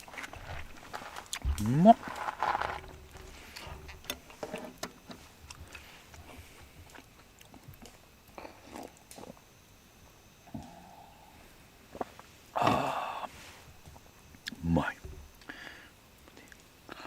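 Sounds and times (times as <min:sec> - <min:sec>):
person chewing: 0:00.0 - 0:04.2, 0:05.5 - 0:09.4.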